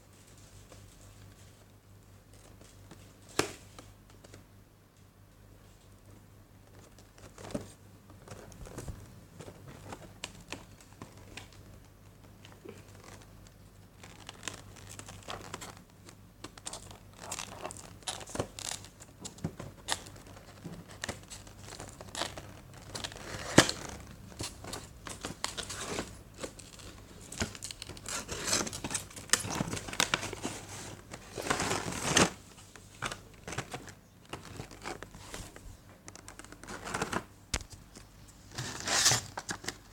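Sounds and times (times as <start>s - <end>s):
packaging crinkling and tearing: 12.4s - 37.8s.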